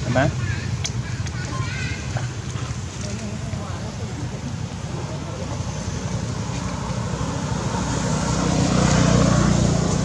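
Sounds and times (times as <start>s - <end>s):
vehicle engine passing close: 4.8s - 10.0s.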